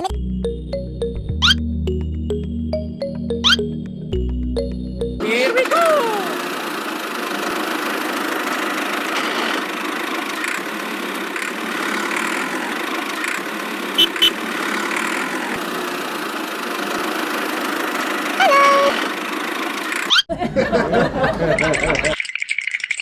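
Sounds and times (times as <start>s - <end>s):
small engine running: 5.4s - 22.1s.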